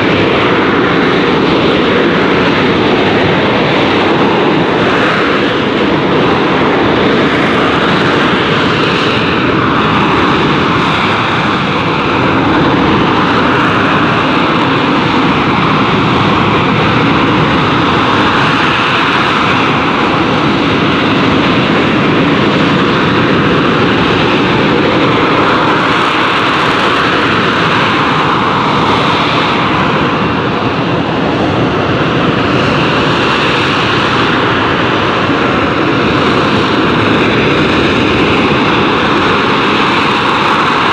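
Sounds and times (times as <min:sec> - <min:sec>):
jet engine roaring: 0:00.0 - 0:40.9.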